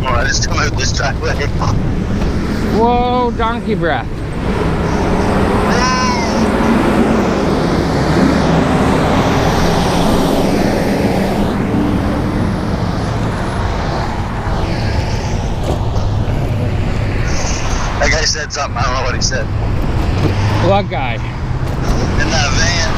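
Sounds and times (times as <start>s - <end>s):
motor traffic passing: 0.0s - 22.9s
wind and road noise: 0.0s - 22.9s.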